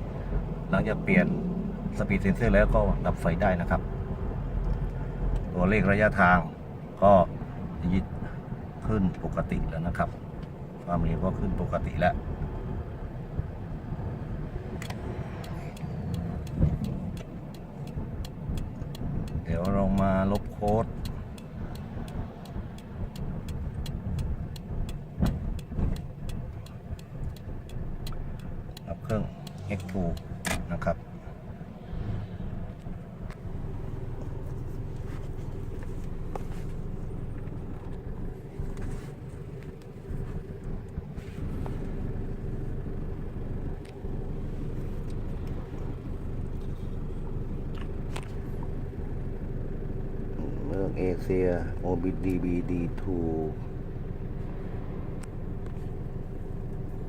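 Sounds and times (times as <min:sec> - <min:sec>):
light regular ticking: 0:00.0 - 0:06.5, 0:13.2 - 0:57.0
diesel engine low rumble: 0:00.0 - 0:57.0
light clicks: 0:14.8 - 0:31.0.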